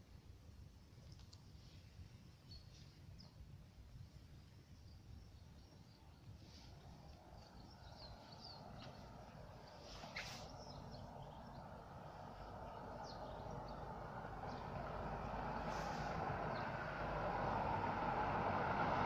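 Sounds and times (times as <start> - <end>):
birds chirping: 4.7 - 16.9.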